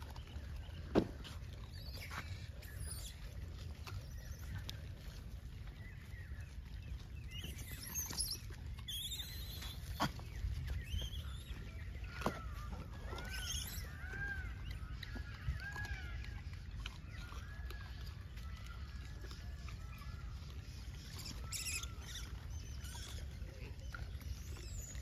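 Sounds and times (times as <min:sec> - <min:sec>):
birds chirping: 0:00.0 - 0:25.0
repeated arching bird calls: 0:07.3 - 0:25.0.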